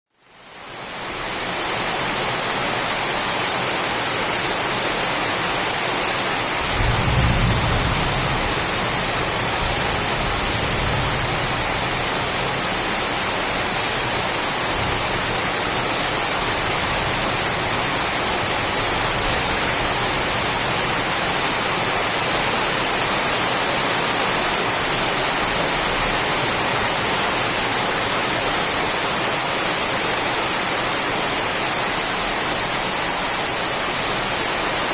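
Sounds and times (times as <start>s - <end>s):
heavy rain on palms: 0.2s - 34.9s
low thunder rumble: 6.6s - 12.4s.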